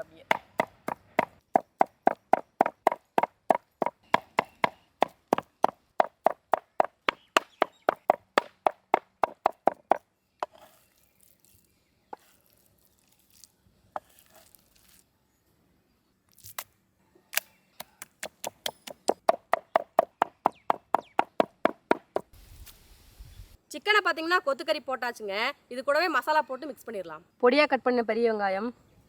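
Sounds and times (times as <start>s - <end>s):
knife chopping on cutting board: 0.3s - 4.7s.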